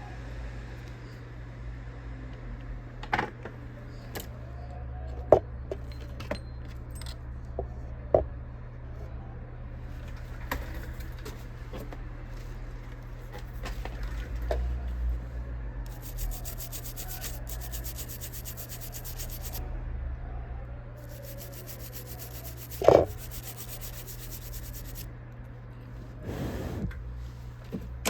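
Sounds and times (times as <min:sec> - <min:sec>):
steady low hum: 0:06.8 - 0:28.0.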